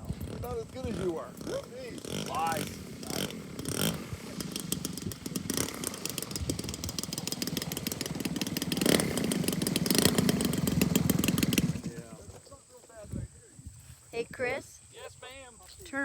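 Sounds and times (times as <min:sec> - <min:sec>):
model airplane engine idling: 0:00.0 - 0:12.5.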